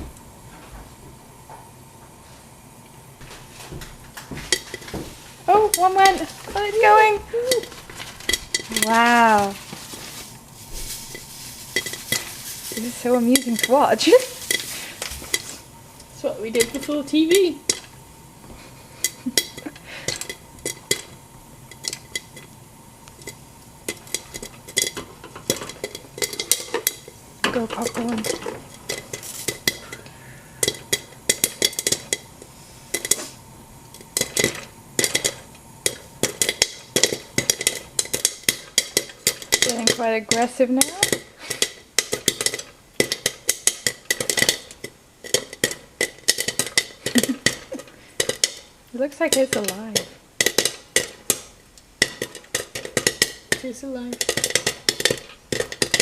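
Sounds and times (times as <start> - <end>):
popcorn popping in a pan: 3.2 - 56.0
kernels clinking on metal lid: 5.5 - 9.6, 11.0 - 15.6, 23.2 - 32.3, 34.0 - 56.0.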